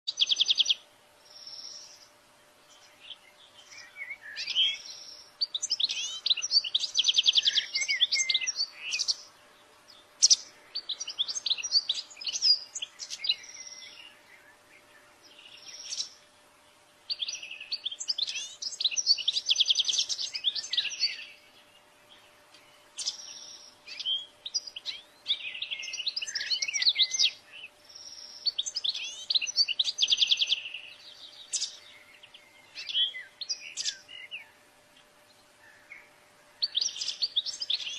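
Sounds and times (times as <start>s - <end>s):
faint steady hum: 0.1s - 37.9s
goldfinch twittering: 10.2s - 14.3s, 15.3s - 16.2s, 23.0s - 34.4s.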